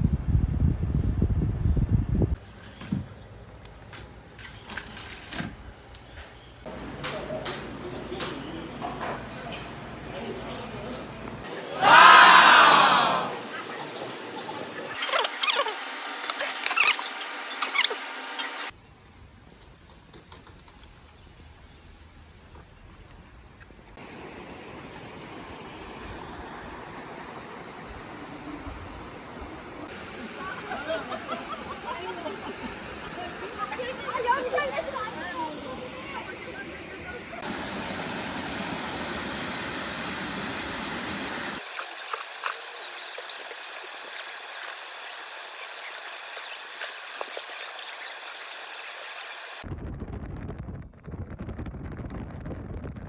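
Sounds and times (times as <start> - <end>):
mountain stream rushing: 24.0 - 49.6
water babbling and splashing: 24.0 - 49.6.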